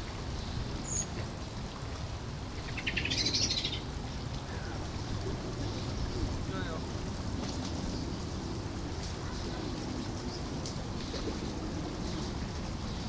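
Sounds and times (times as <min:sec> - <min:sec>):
bird chirping: 0:02.6 - 0:03.8.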